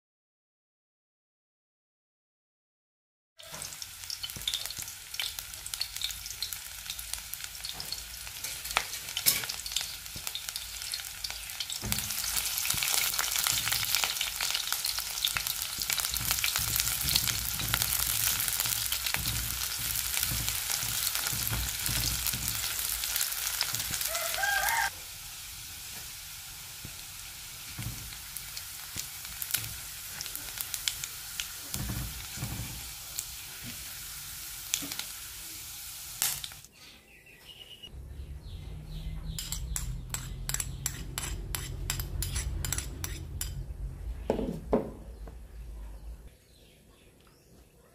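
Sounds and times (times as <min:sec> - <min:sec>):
onions sizzling in a wok: 0:03.4 - 0:36.7
spatula stirring and tapping: 0:11.8 - 0:24.1, 0:39.3 - 0:43.6.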